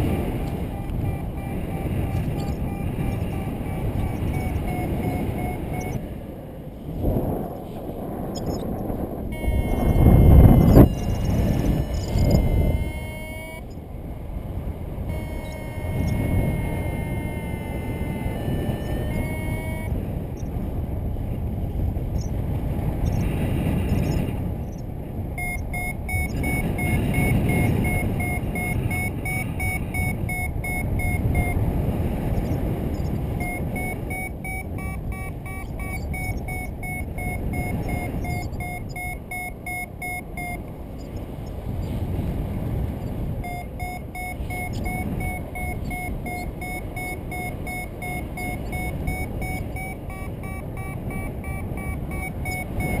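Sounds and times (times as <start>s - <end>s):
variometer quick short beeps: 0.0s - 6.0s, 9.3s - 13.8s, 15.1s - 20.5s, 25.4s - 31.6s, 32.3s - 41.2s, 43.4s - 53.0s
wind rumble on microphone: 0.0s - 53.0s.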